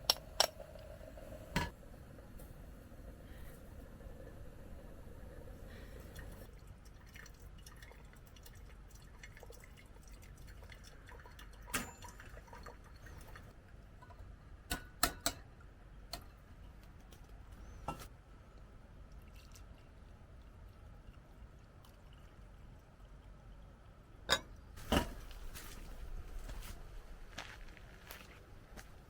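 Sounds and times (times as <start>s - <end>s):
low steady rumble: 0.0s - 6.8s
small drips: 5.7s - 14.2s, 18.5s - 23.9s.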